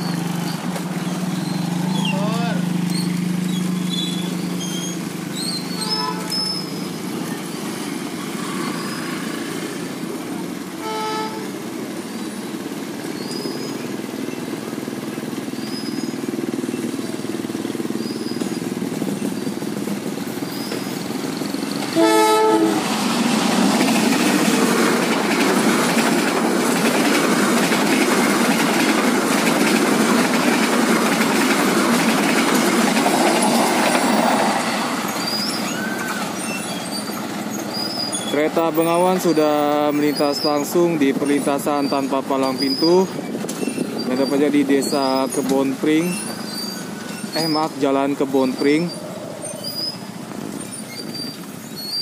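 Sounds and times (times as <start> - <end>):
diesel train passing: 0.0 - 52.0
train horn blast: 5.8 - 6.6, 10.8 - 11.6, 21.9 - 22.9.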